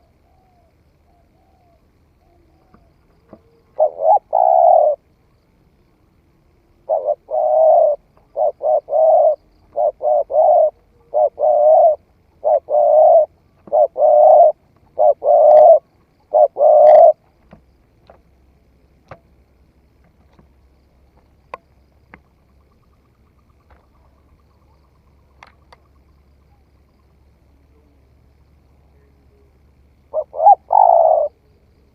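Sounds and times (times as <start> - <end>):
dove cooing: 0.0 - 5.0, 6.8 - 17.4, 29.0 - 31.9
faint clicks: 25.3 - 25.9.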